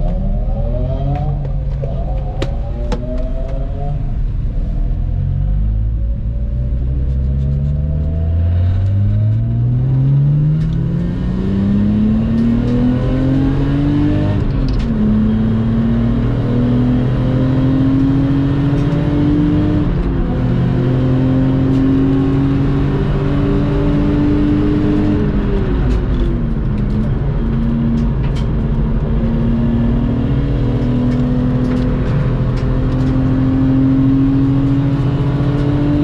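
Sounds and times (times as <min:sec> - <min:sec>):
car engine accelerating hard: 0:00.0 - 0:36.0.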